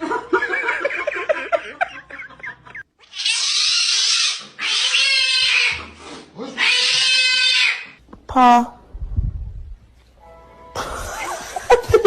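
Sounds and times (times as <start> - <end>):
pet squeaky yelps: 3.0 - 5.9, 6.6 - 8.0.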